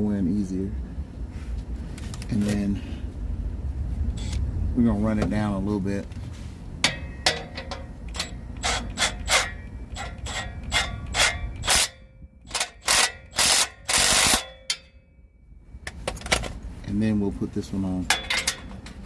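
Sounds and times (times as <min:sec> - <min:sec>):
socket ratchet clicking: 0:08.1 - 0:14.5.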